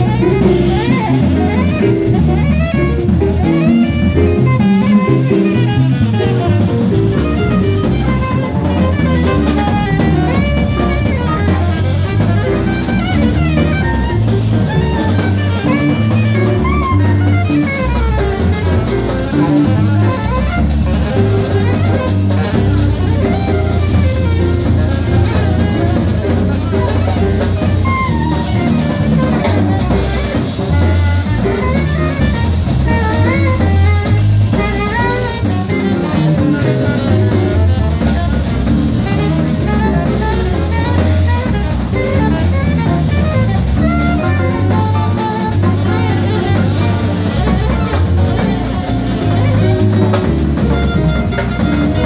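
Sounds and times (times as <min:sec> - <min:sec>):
melodic line: 0:00.0 - 0:37.9
drum kit: 0:00.0 - 0:52.0
walking bass line: 0:00.0 - 0:52.0.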